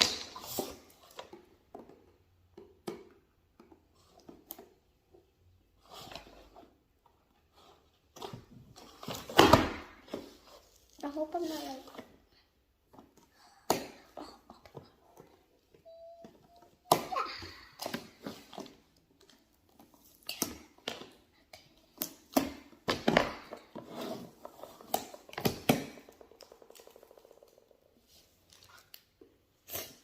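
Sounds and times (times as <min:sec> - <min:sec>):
toys and packaging being handled: 0:00.0 - 0:30.0.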